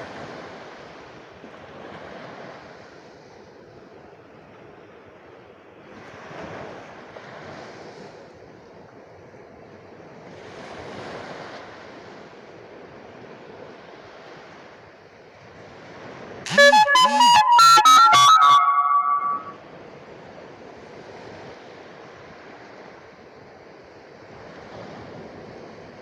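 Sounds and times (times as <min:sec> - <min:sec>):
loud reedy music: 0:16.5 - 0:19.5.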